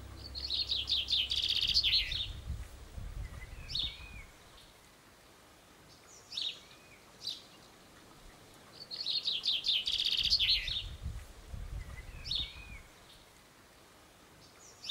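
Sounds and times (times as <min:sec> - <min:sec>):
low rumble: 0:00.0 - 0:04.5
songbird chirping and trilling: 0:00.0 - 0:04.7, 0:08.3 - 0:13.2.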